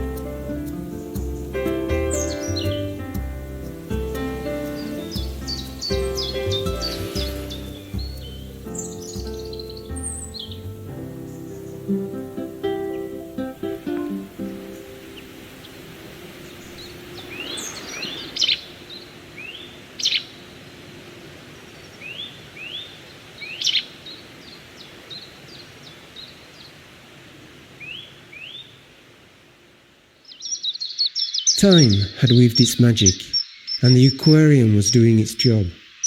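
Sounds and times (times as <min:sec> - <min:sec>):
high rising bird chirps: 0:00.9 - 0:03.0, 0:04.2 - 0:12.2, 0:14.5 - 0:20.4, 0:30.3 - 0:36.0
sharp loud bird calls: 0:04.4 - 0:12.0, 0:16.4 - 0:20.4.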